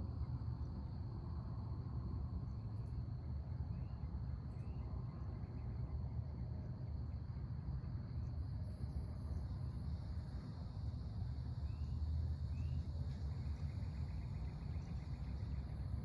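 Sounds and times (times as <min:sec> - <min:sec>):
crickets trilling: 0:08.9 - 0:16.0
faint bird chirps: 0:11.6 - 0:15.9.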